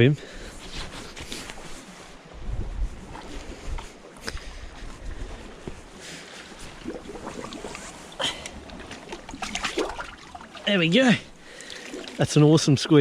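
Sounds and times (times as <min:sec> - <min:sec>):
wind buffeting microphone: 0:02.3 - 0:06.0
seawater splashing: 0:05.9 - 0:13.0.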